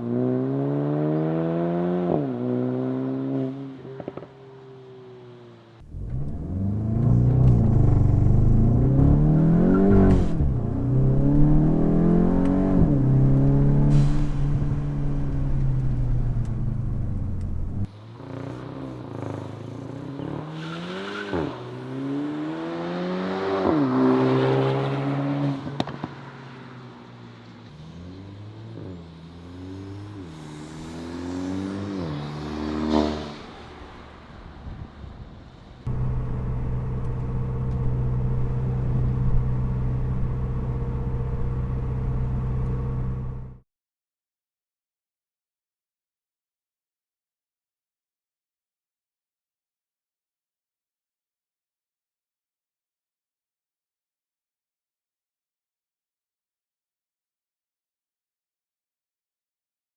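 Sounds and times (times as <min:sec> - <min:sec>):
car engine revving: 0:05.8 - 0:19.6, 0:35.9 - 0:43.6.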